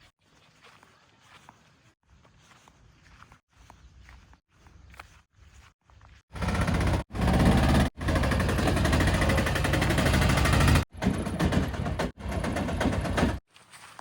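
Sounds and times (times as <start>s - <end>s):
heavy diesel engine running: 6.3s - 13.4s.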